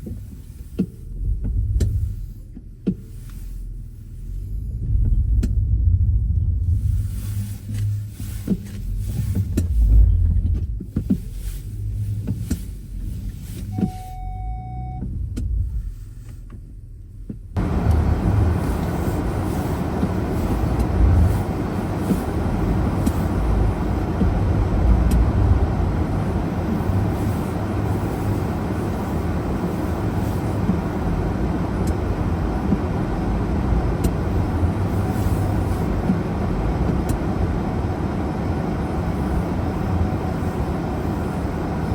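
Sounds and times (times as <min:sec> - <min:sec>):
road and tyre noise rushing: 0:00.0 - 0:13.9, 0:17.2 - 0:41.9
car low rumble: 0:00.0 - 0:41.9
short steady beep: 0:13.7 - 0:15.1.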